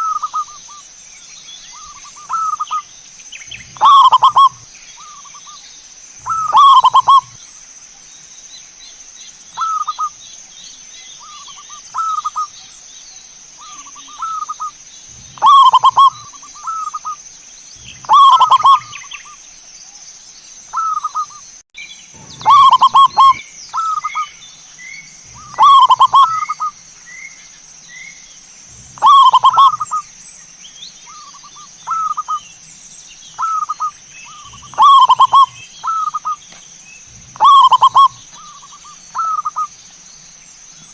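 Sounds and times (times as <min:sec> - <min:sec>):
dove cooing: 0:03.6 - 0:05.4, 0:06.2 - 0:07.4, 0:13.6 - 0:17.2, 0:17.8 - 0:19.0, 0:22.2 - 0:24.2, 0:25.3 - 0:26.7, 0:28.8 - 0:30.0, 0:31.1 - 0:32.4, 0:33.4 - 0:36.4, 0:37.2 - 0:39.7.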